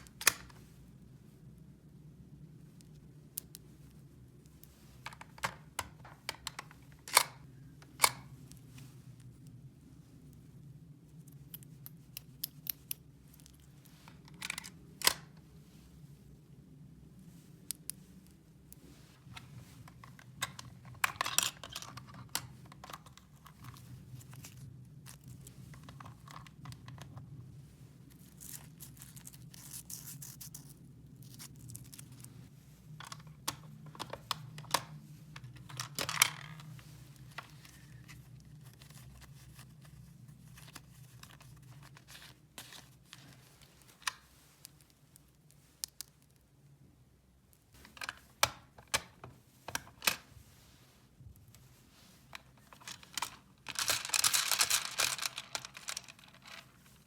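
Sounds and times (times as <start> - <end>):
crinkling rustles: 49.6 - 57.0.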